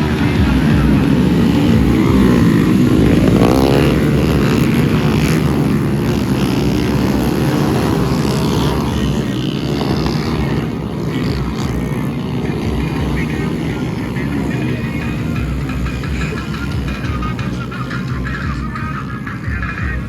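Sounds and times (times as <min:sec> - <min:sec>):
motorcycle engines revving high: 0:00.0 - 0:20.0.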